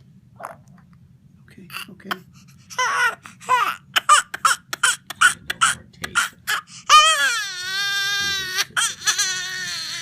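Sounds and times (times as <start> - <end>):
infant crying: 2.7 - 10.0.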